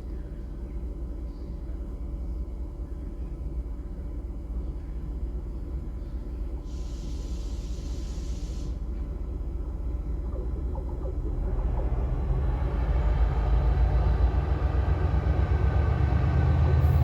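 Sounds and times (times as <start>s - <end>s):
train rumbling: 5.3s - 17.0s
hiss of air: 6.7s - 8.8s
wheels rattling on rails: 10.0s - 17.0s.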